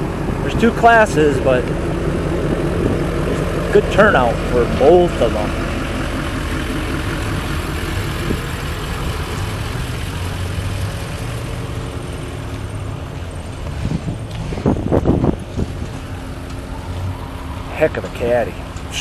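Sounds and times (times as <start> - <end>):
car engines idling: 0.0 - 19.0
outdoor noise: 0.0 - 19.0.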